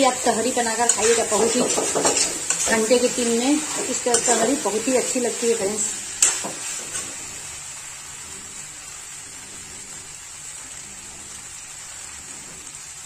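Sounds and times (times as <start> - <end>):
food sizzling in oil: 0.0 - 13.0
spatula knocking against pan: 0.9 - 2.8.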